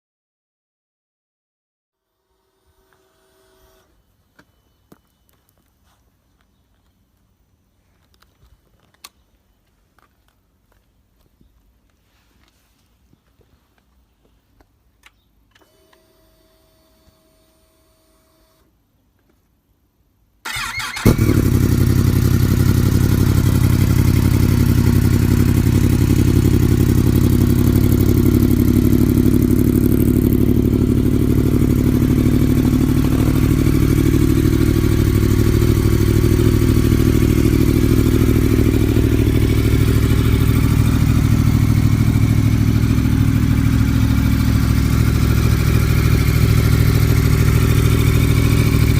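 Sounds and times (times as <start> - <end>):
motorcycle engine idling loudly: 20.5 - 48.9.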